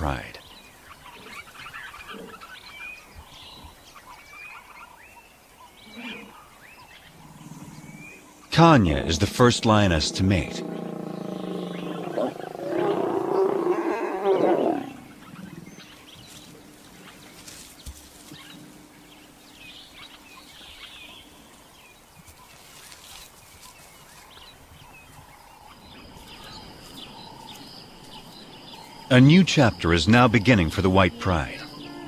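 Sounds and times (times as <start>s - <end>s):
lion growling: 7.1s - 15.9s.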